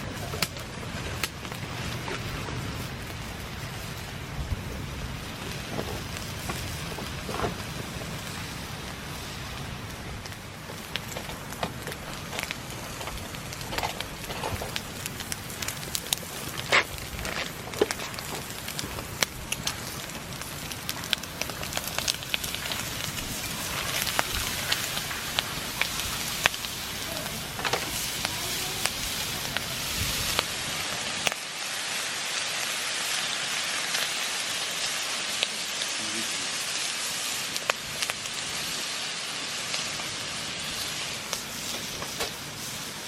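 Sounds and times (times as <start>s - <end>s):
bacon sizzling in a pan: 0.0s - 43.0s
wood fire crackling and popping: 0.0s - 43.0s.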